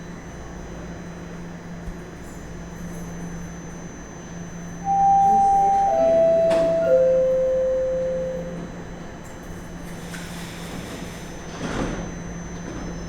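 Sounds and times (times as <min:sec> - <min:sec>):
descending door chime: 0:04.8 - 0:08.9.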